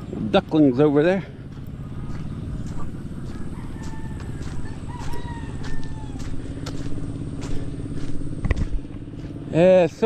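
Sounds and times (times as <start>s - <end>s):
engine humming: 0.0s - 10.0s
rooster crowing: 3.2s - 7.1s.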